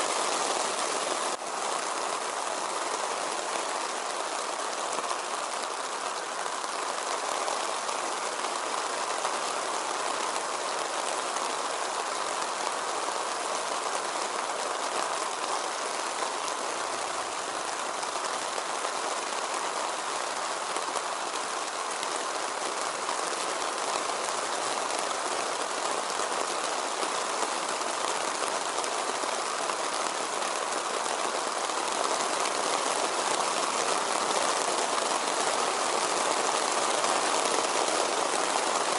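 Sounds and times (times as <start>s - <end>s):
rain falling in forest: 0.0s - 38.9s.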